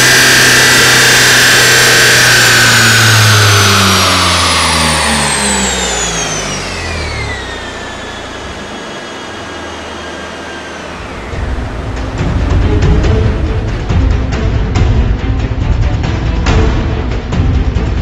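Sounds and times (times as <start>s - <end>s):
roller whine falling in pitch: 0.0s - 14.8s
car engine revving down: 0.0s - 15.2s
music: 11.1s - 18.0s.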